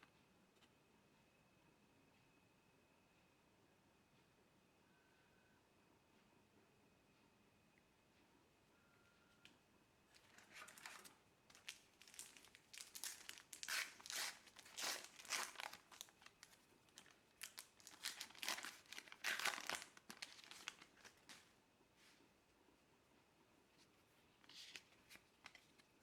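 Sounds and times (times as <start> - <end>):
wrapper crinkling and tearing: 10.3 - 21.4.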